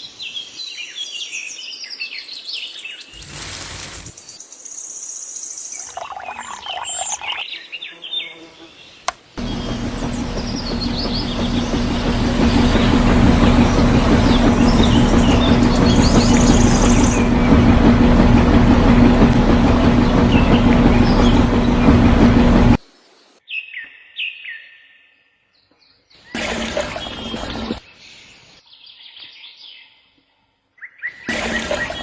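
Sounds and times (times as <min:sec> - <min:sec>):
loud mechanical hum: 0:09.4 - 0:22.8, 0:26.4 - 0:27.8, 0:31.3 - 0:32.0.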